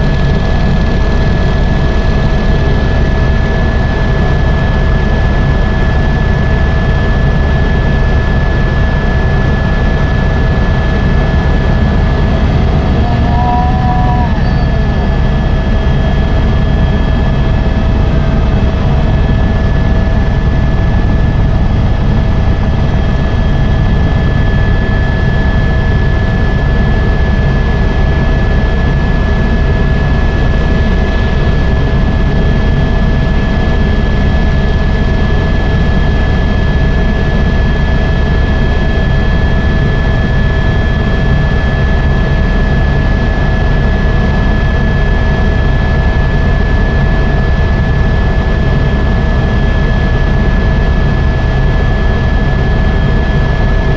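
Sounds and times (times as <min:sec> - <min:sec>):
helicopter rotor and engine drone: 0:00.0 - 0:53.9
high whine: 0:08.0 - 0:26.7.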